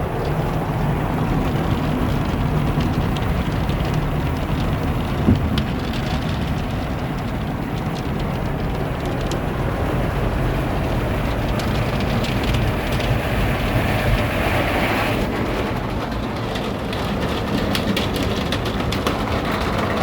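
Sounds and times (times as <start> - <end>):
car wash machinery rumble: 0.0 - 20.0
water droplets pattering on glass: 0.2 - 13.1.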